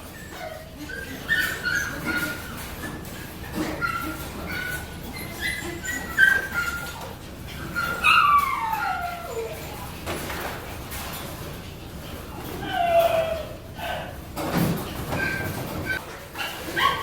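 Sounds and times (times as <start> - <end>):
dog whining and yelping: 0.0 - 9.8, 12.4 - 14.2, 15.1 - 17.0.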